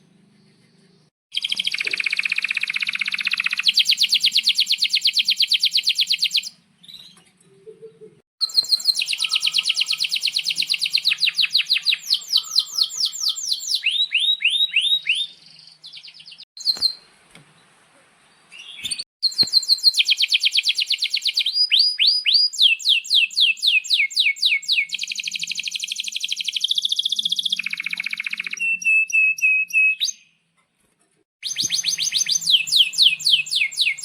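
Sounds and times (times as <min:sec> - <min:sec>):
canary singing rolling trills: 0:00.2 - 0:07.2, 0:08.4 - 0:17.1, 0:31.4 - 0:34.0.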